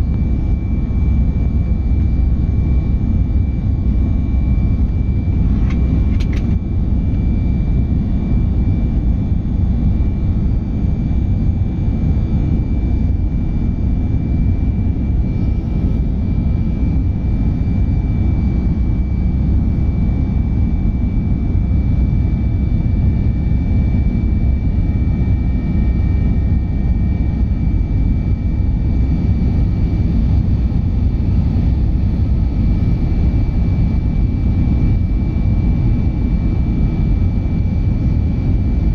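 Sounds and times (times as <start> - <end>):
jet engine cabin rumble: 0.0 - 38.9.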